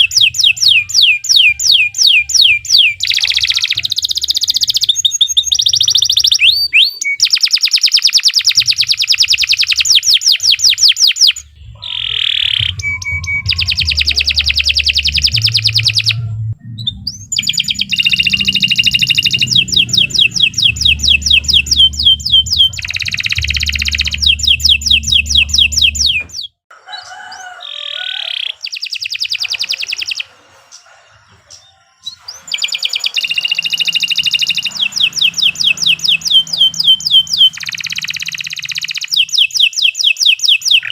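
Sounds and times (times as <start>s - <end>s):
canary singing trills: 0.0s - 40.9s
low hum: 11.4s - 26.4s, 33.3s - 39.0s.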